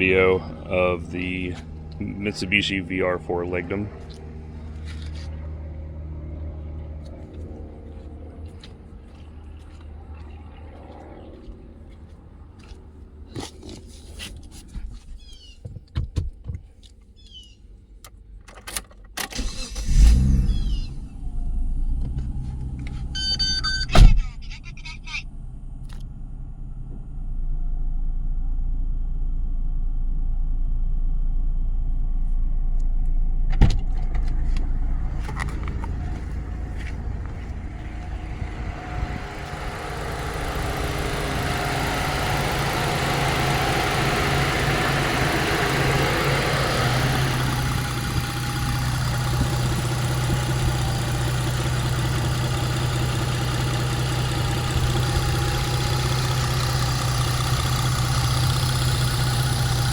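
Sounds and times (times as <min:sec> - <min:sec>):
car engine idling: 0:00.0 - 0:15.6, 0:19.3 - 0:59.9.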